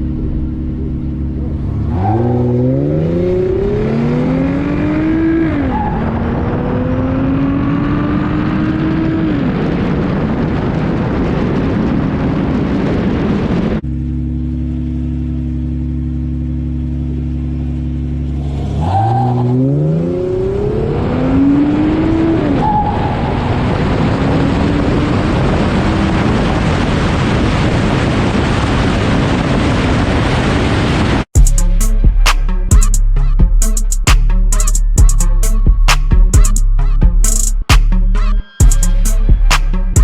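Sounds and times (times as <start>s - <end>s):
car engine accelerating through gears: 0.0s - 10.6s, 13.4s - 27.6s.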